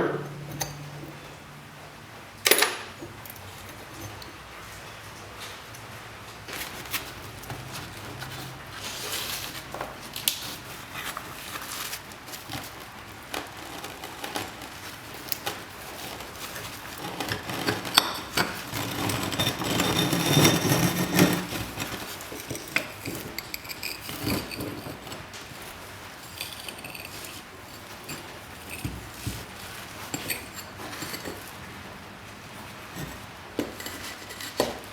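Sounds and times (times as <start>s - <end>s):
scraping and rubbing: 6.5s - 31.9s, 32.5s - 34.9s.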